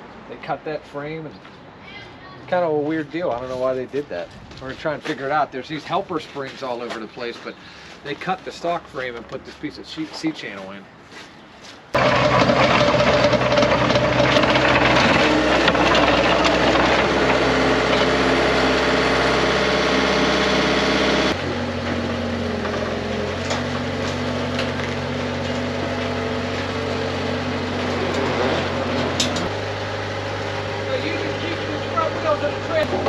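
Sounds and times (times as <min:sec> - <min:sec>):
engine running steadily: 0:12.0 - 0:33.0.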